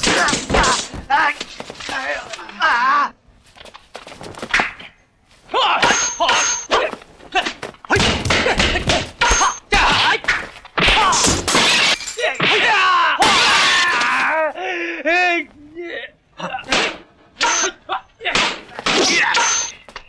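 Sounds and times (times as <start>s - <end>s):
wooden staffs hitting: 0.0s - 1.9s, 5.7s - 14.1s, 18.3s - 19.7s
fighters shouting and grunting: 0.0s - 3.2s, 5.4s - 19.9s.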